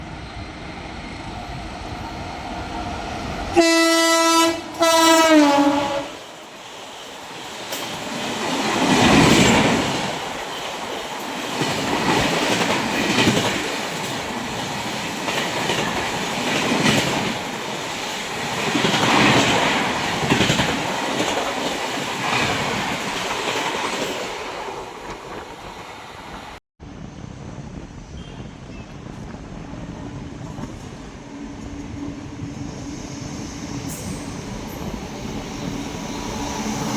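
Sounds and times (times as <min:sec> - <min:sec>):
train wheels clattering on rails: 0:04.8 - 0:25.6.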